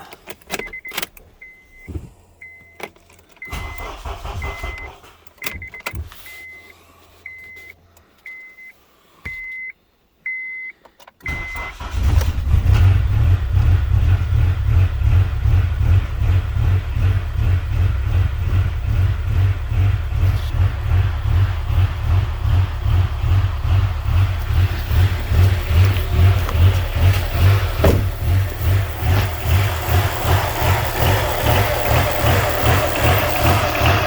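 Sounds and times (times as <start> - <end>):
car engine starting and running: 0.0 - 6.7, 11.2 - 34.0
car warning chime beeping: 0.5 - 12.0.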